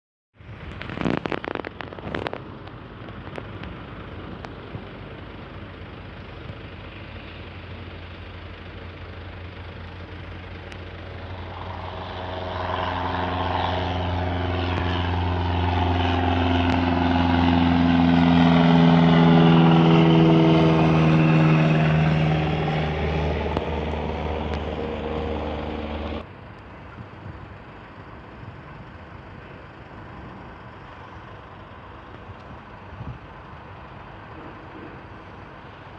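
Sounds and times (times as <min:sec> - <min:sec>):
piston aircraft engine passing: 0:08.6 - 0:26.2.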